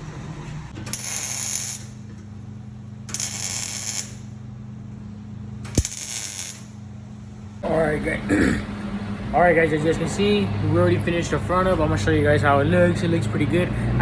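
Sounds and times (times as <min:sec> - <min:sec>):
steady low hum: 0:00.0 - 0:12.4
hissing bursts: 0:05.7 - 0:06.7.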